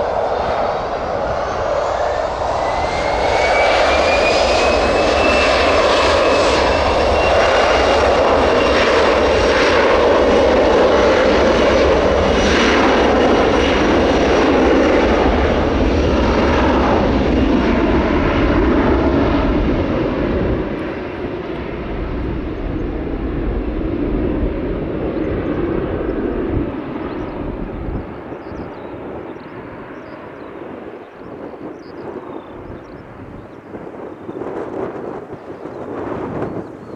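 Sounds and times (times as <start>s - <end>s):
jet engines roaring: 0.0s - 36.9s.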